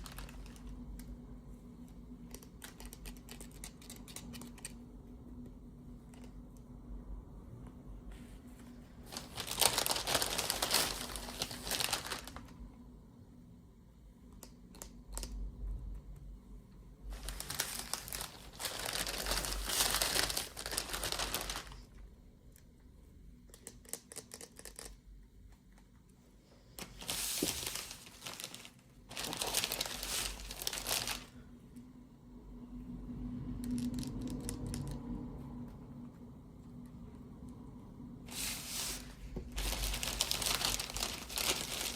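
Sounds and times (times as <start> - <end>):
packaging crinkled and torn: 0.0 - 1.1, 9.1 - 12.5, 17.1 - 21.9, 26.8 - 31.4, 33.6 - 35.0, 38.3 - 41.9.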